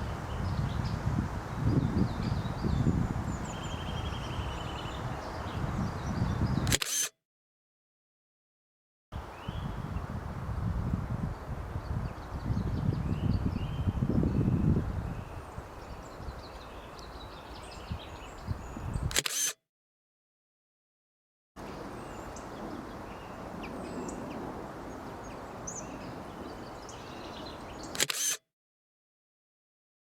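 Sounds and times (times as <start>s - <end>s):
sharp click: 6.6s - 7.1s, 19.0s - 19.6s, 27.9s - 28.4s.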